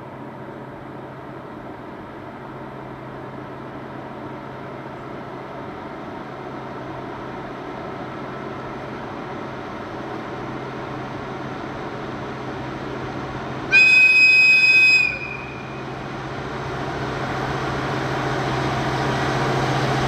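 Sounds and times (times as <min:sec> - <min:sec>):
diesel train engine drone: 0:00.0 - 0:20.0.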